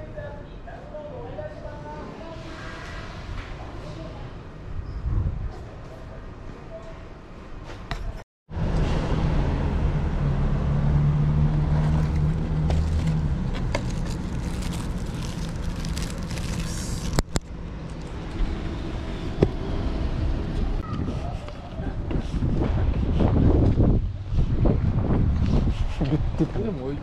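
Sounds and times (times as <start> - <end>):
vehicle engine running: 9.2 - 20.8.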